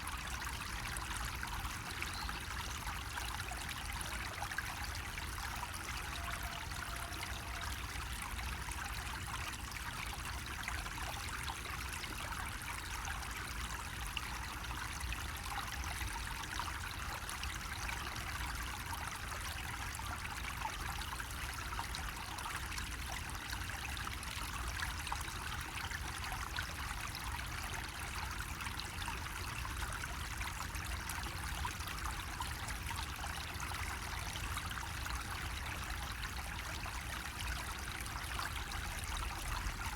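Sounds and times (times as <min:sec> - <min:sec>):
water trickling from a spout: 0:00.0 - 0:39.9.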